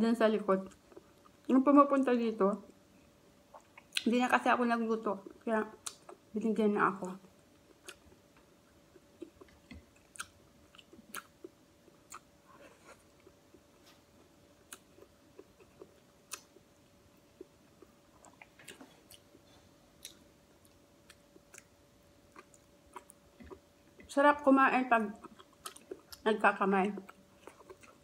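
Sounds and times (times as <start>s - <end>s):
faint steady hum: 0.0s - 28.0s
person chewing: 3.5s - 4.0s, 5.2s - 6.2s, 7.5s - 24.1s, 25.2s - 26.2s, 27.0s - 28.0s.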